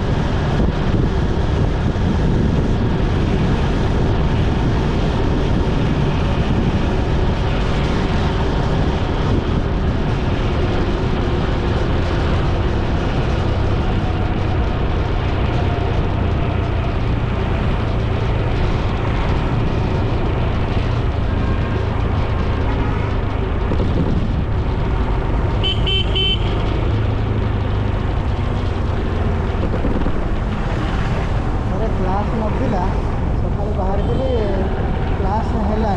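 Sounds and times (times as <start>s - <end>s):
motorcycle engine: 0.0s - 35.9s
wind noise: 0.0s - 35.9s
vehicle horn short beeps: 25.6s - 26.5s.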